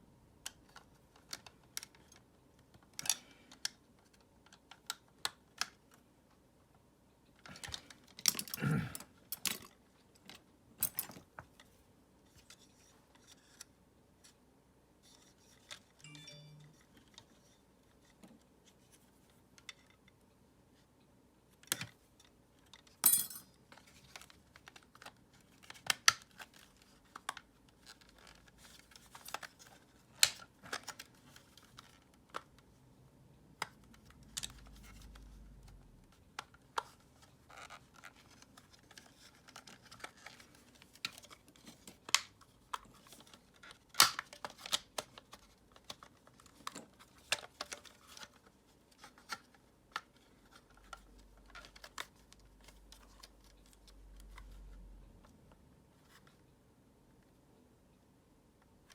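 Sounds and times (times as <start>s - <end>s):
plastic parts clicking and scraping: 7.4s - 8.6s, 33.6s - 54.7s.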